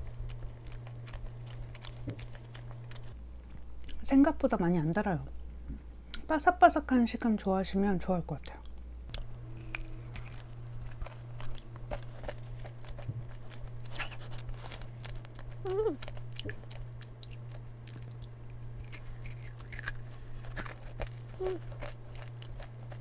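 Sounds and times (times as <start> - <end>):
crunchy cookie chewing: 0.0 - 3.2, 9.1 - 23.0
steady low hum: 0.0 - 23.0
person humming: 15.6 - 16.1, 21.3 - 21.8.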